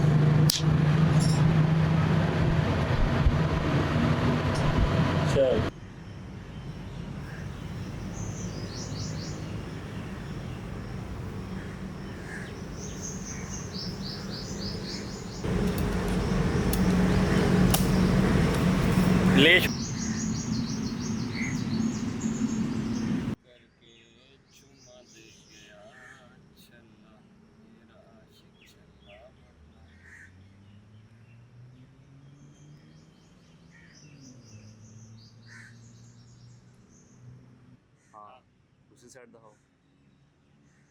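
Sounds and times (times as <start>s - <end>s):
loud hum: 0.0s - 5.7s, 9.4s - 23.4s
small bird chirping: 5.9s - 23.4s.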